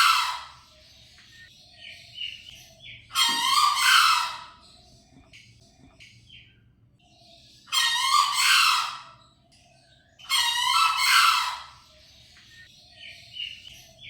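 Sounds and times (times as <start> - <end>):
junglefowl crowing: 0.0 - 0.6, 3.1 - 4.6, 7.7 - 9.2, 10.3 - 11.8.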